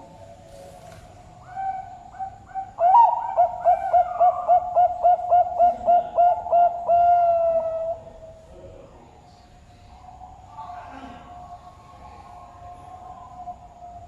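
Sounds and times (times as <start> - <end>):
dove cooing: 0.0 - 8.4.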